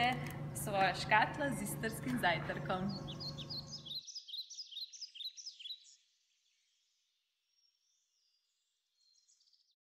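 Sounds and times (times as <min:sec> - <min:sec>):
faint bird chirping: 0:02.8 - 0:09.8.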